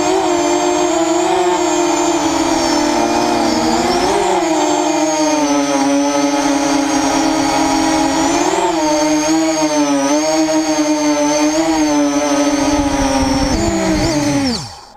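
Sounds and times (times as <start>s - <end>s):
quadcopter motors buzzing whine: 0.0s - 14.9s.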